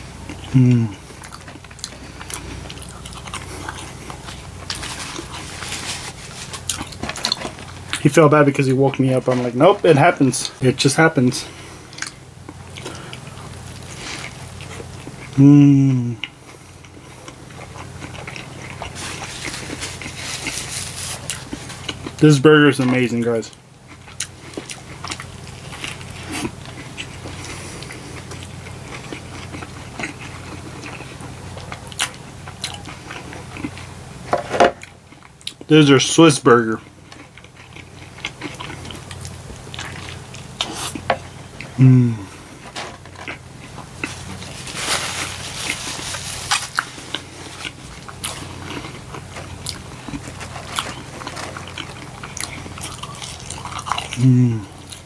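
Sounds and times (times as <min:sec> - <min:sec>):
steady low hum: 0:00.0 - 0:55.0
wet chewing mouth sounds: 0:00.3 - 0:08.0, 0:16.1 - 0:22.2, 0:36.8 - 0:44.5, 0:46.4 - 0:55.0.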